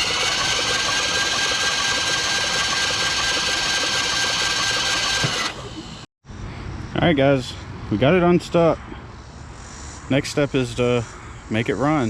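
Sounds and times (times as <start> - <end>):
starter motor cranking engine: 0.0 - 5.8.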